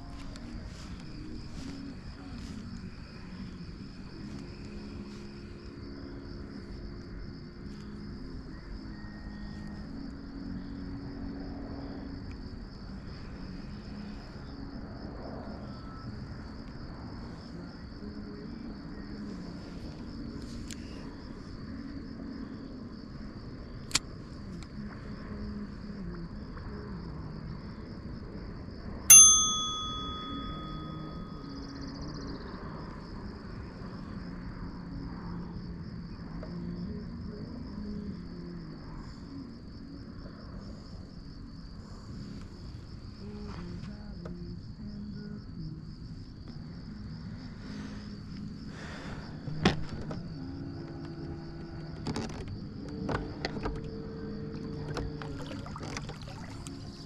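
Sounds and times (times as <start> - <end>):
loud metallic ding: 29.1 - 31.3.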